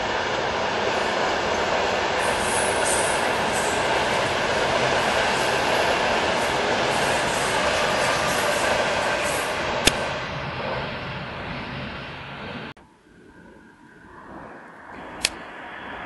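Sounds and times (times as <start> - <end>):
train rushing through station: 0.0 - 12.7.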